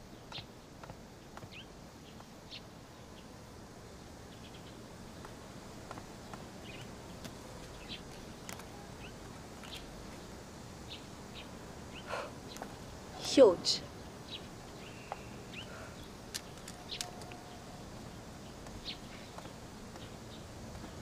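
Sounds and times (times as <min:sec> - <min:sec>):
low background hiss: 0:00.0 - 0:21.0
bird chirps: 0:13.8 - 0:20.5
light clicks: 0:16.3 - 0:17.4.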